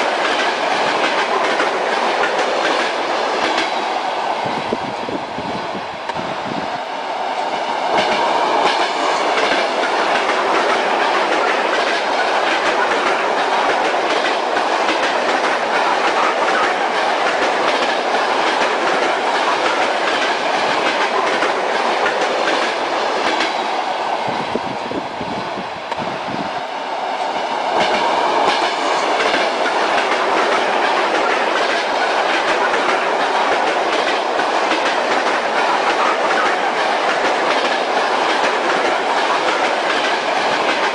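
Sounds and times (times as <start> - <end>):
train wheels clattering on rails: 0.0 - 4.9, 6.1 - 24.8, 25.9 - 40.9.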